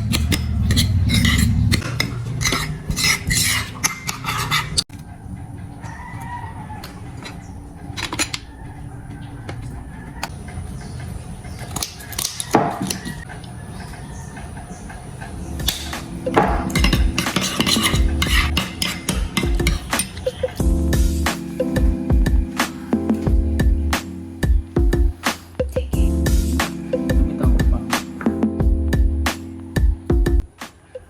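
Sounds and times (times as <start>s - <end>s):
dishes and cutlery clinking: 0.0s - 5.0s, 6.8s - 8.6s, 15.6s - 20.6s
background music with beat: 15.4s - 31.0s.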